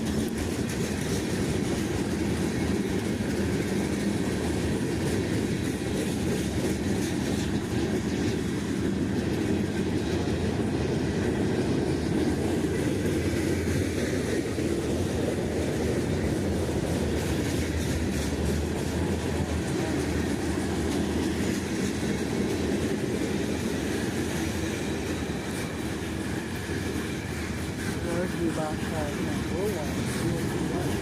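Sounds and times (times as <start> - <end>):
freight train wheels rumbling: 0.0 - 31.0.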